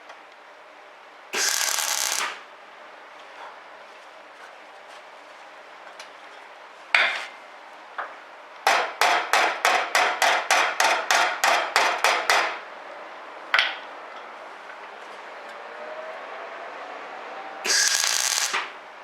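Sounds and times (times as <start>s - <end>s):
hammer blows on sheet steel: 1.4s - 2.4s, 8.7s - 12.6s, 17.7s - 18.8s.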